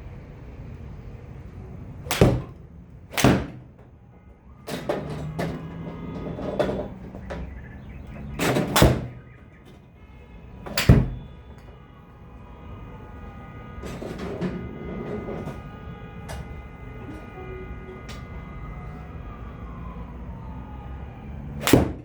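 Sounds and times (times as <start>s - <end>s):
golf club hitting ball: 2.1s - 3.6s, 21.6s - 22.0s.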